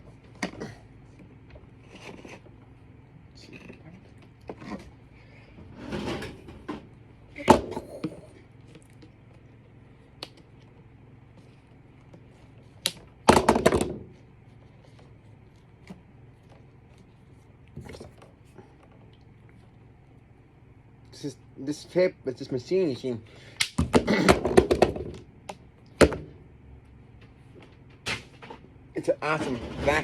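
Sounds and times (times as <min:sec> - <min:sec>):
vacuum sweeper rattling: 0:27.2 - 0:30.0.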